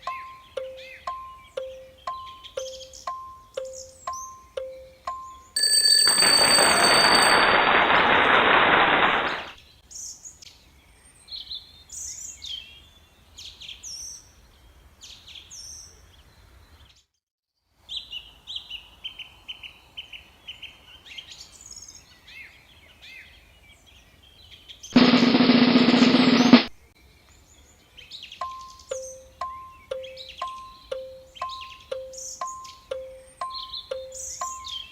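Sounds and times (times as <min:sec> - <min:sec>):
birds chirping and trilling: 0:00.0 - 0:05.6, 0:27.5 - 0:34.9
harsh alarm buzzer: 0:05.6 - 0:07.6.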